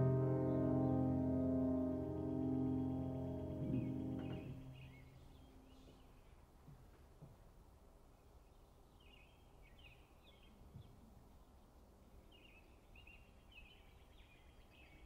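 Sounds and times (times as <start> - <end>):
distant birds chirping: 0.0 - 6.7.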